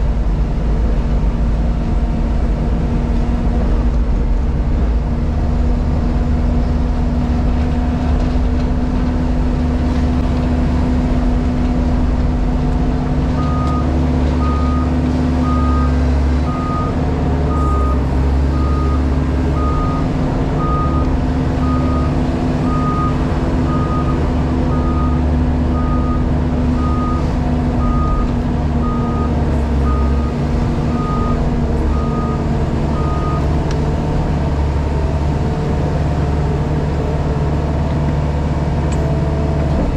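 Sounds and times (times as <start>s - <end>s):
diesel engine running: 0.0s - 39.9s
reversing alarm beeping: 13.4s - 33.5s.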